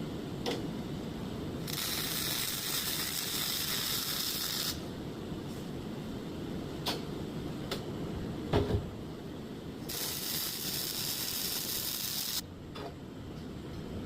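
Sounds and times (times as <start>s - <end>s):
welding arc crackling hiss: 1.6s - 4.8s, 9.8s - 12.4s.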